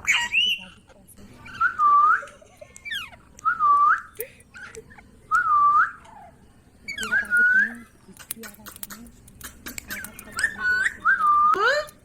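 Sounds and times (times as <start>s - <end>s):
parrot whistling: 6.9s - 7.8s.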